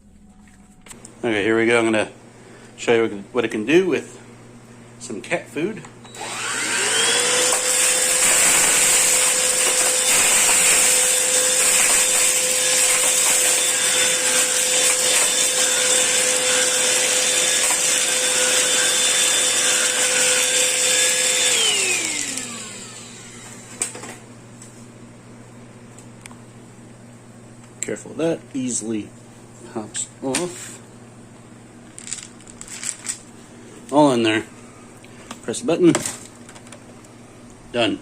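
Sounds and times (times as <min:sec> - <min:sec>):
stick vacuum whining: 0:06.0 - 0:24.2.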